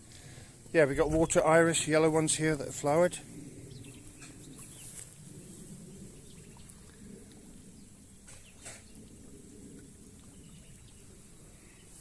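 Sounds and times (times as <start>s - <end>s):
low rumble: 0.0s - 12.0s
birds chirping: 0.2s - 12.0s.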